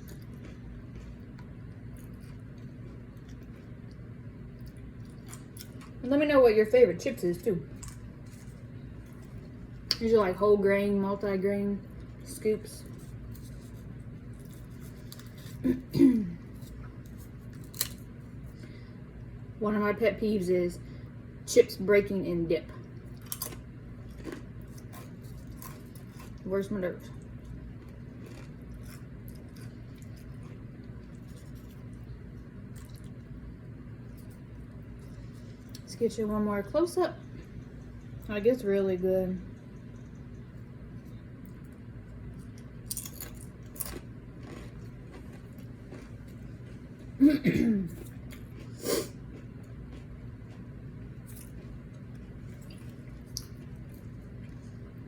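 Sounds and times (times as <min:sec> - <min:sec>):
person eating chips: 0:00.0 - 0:06.0, 0:07.7 - 0:10.0, 0:12.8 - 0:18.2, 0:23.1 - 0:26.5, 0:27.2 - 0:33.3, 0:42.4 - 0:47.2, 0:47.8 - 0:54.9
steady low hum: 0:00.0 - 0:55.0.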